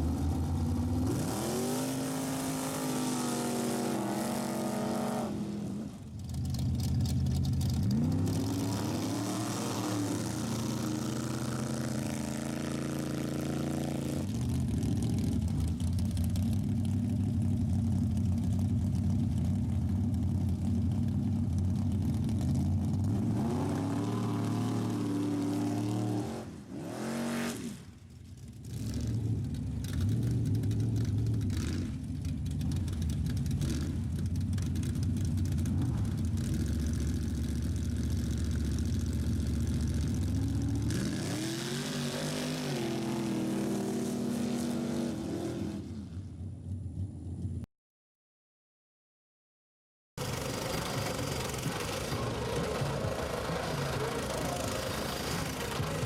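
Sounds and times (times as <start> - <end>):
car engine revving hard: 1.0 - 5.6, 40.8 - 45.8.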